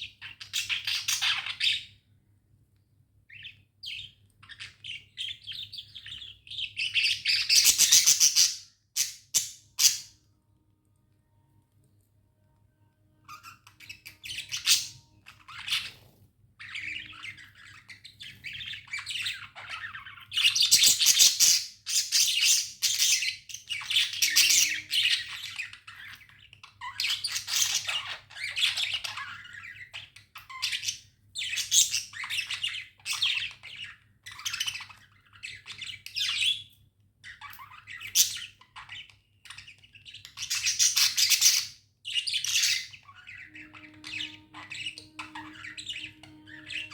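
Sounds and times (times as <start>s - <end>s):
budgerigars chirping and chattering: 0.0s - 2.0s, 3.3s - 10.2s, 13.2s - 46.9s
faint low hum: 9.0s - 21.2s, 42.0s - 46.9s.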